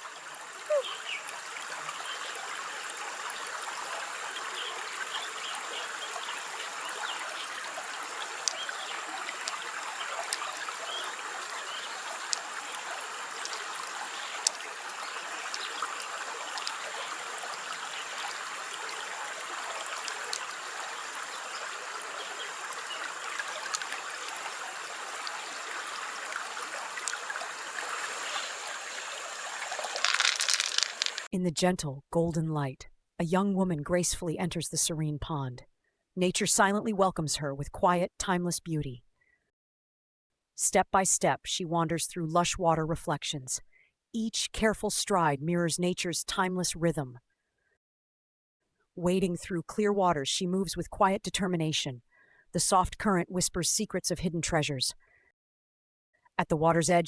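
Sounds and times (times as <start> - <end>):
water trickling: 0.0 - 31.3
faint sharp ticks: 8.4 - 8.6.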